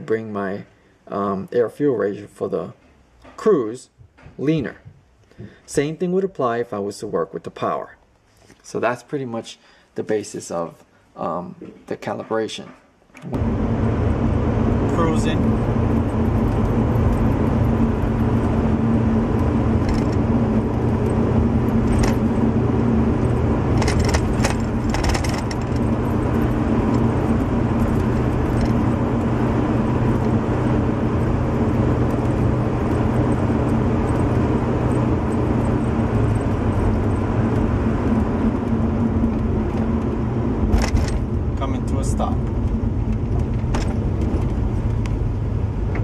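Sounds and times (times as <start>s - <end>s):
road noise: 13.1s - 46.0s
car engine drone: 13.2s - 46.0s
light rattles: 14.8s - 45.2s.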